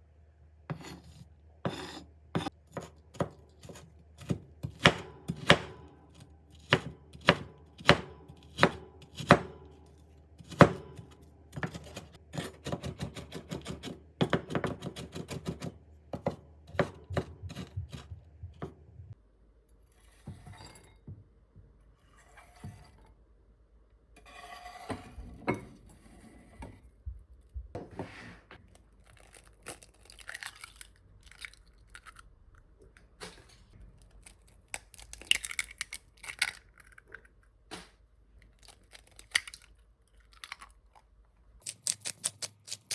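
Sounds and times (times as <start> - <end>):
knife chopping on cutting board: 0.7 - 5.8, 6.7 - 9.6, 10.4 - 18.8.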